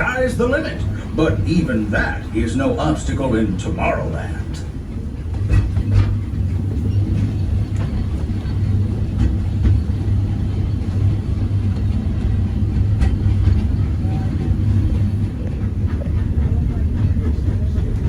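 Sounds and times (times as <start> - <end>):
train rumbling on track: 0.0 - 18.0
wheels clicking on rails: 0.0 - 18.0.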